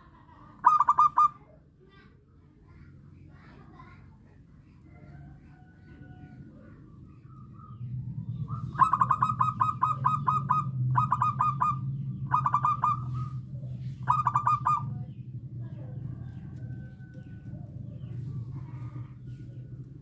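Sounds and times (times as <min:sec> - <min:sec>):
steady low hum: 0:00.0 - 0:20.0
dove cooing: 0:00.6 - 0:01.4, 0:04.9 - 0:20.0.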